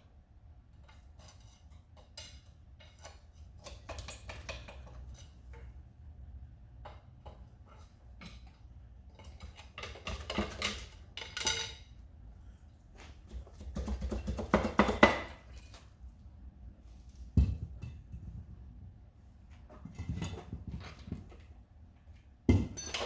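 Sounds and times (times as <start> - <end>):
metal tools clinking and rattling: 9.8 - 11.8, 22.6 - 23.0.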